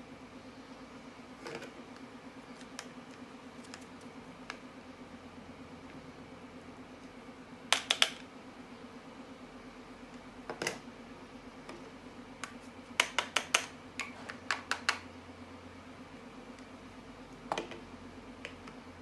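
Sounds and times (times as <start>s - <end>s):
steady low hum: 0.0s - 19.0s
clicks and taps of hard objects: 7.7s - 8.2s, 12.4s - 15.0s.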